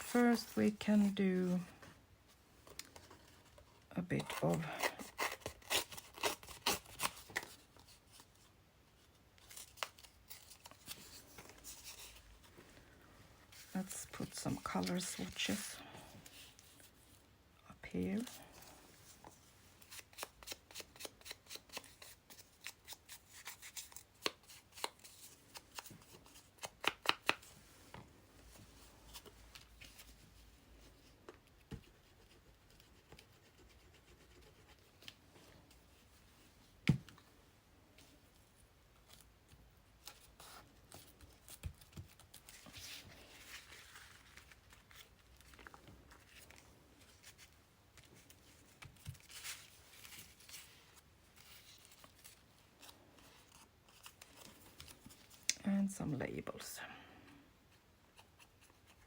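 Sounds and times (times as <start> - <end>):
paper rustling: 40.0 - 55.5.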